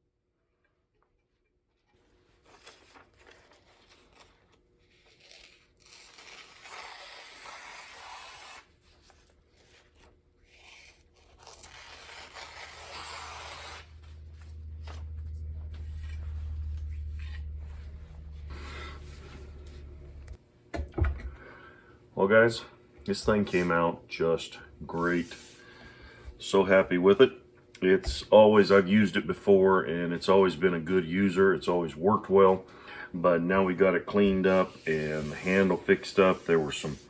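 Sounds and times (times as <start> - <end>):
steady low hum: 8.8 - 37.0
rubbing and scraping strokes: 33.6 - 37.0.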